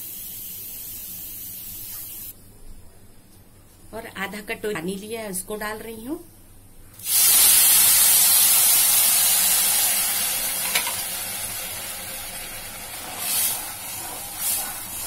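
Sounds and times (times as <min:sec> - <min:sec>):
water hissing in hot pan: 0:00.0 - 0:02.3, 0:07.0 - 0:15.0.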